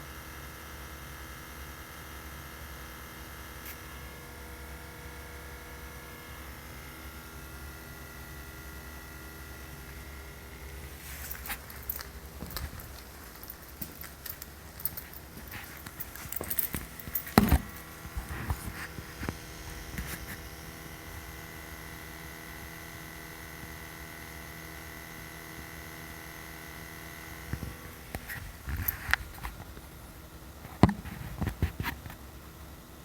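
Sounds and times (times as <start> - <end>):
steady electrical hum: 0.0 - 33.0
handling knocks and rustles: 9.9 - 20.5.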